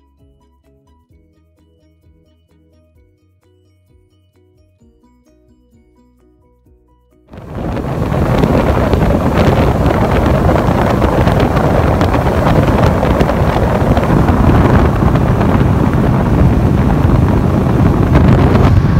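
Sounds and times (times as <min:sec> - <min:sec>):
wind buffeting microphone: 0:07.3 - 0:18.9
rushing water: 0:07.4 - 0:18.9.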